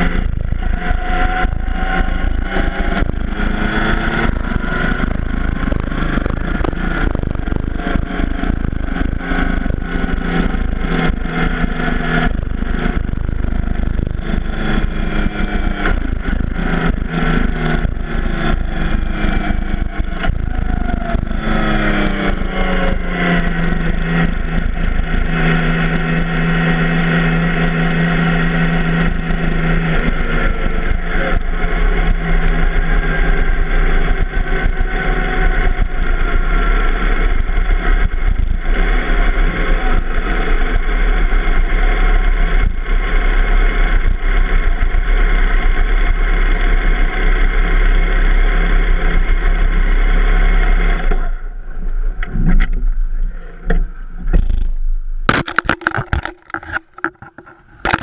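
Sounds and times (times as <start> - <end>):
wind buffeting the microphone: 0.0 - 25.7
motorcycle engine running: 0.0 - 58.0.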